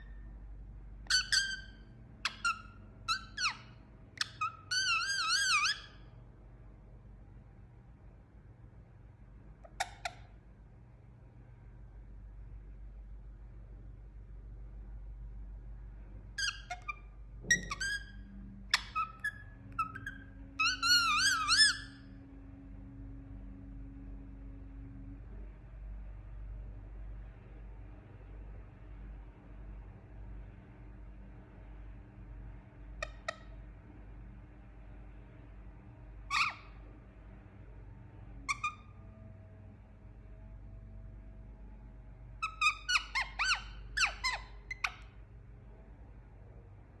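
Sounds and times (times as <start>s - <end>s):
parakeet squawking: 1.1s - 6.0s, 16.4s - 22.1s, 33.0s - 33.5s, 36.3s - 36.8s, 38.5s - 39.0s, 42.4s - 45.1s
parakeet wavering whistle call: 1.1s - 6.0s, 16.4s - 22.0s, 36.3s - 36.8s, 38.5s - 39.0s, 42.4s - 45.0s.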